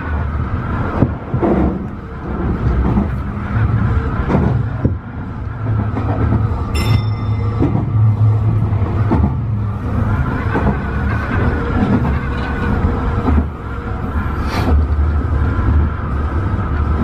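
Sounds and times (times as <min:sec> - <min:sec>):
electric train rumbling: 0:00.0 - 0:17.0
train wheel clicks: 0:05.8 - 0:09.4
brief high tone: 0:06.8 - 0:08.3.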